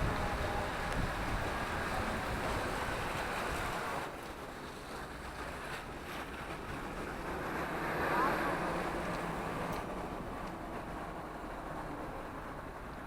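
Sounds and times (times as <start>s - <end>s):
wind rushing over microphone: 0.0s - 3.8s.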